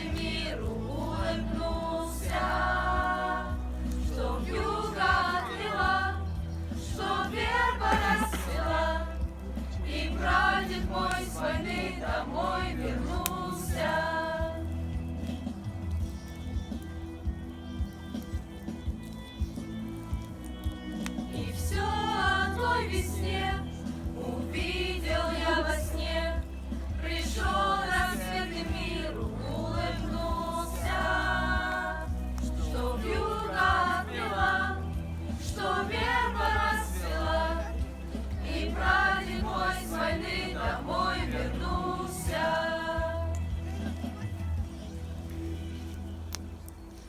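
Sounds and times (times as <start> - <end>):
choir singing: 0.0 - 14.7, 21.3 - 44.0.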